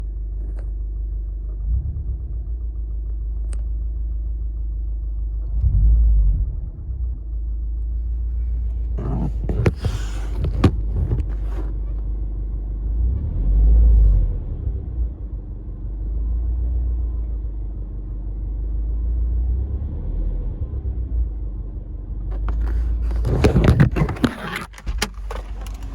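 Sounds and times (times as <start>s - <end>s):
car engine rumbling: 1.4s - 13.2s, 21.0s - 25.9s
rustling: 8.3s - 11.8s, 22.3s - 25.9s.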